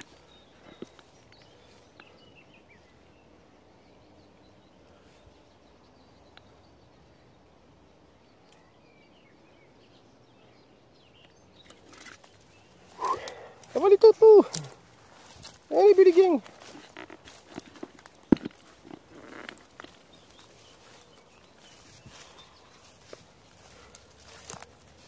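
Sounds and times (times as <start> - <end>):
faint bird chirps: 0.0 - 16.7.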